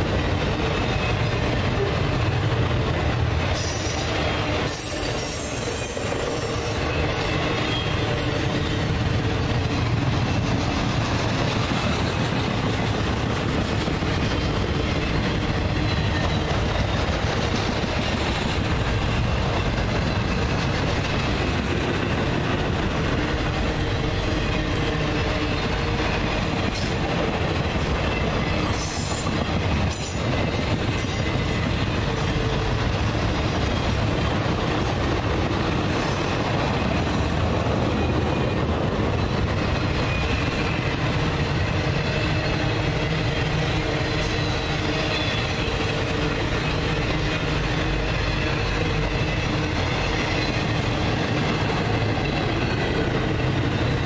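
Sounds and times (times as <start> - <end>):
steel wheels running on rails: 0.0 - 54.0.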